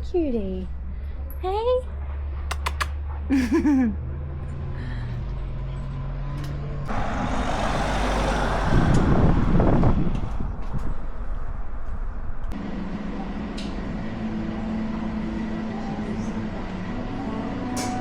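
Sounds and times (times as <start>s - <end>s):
traffic noise: 0.0s - 18.0s
vehicle engine humming: 0.0s - 18.0s
vehicle passing close by: 1.9s - 12.6s.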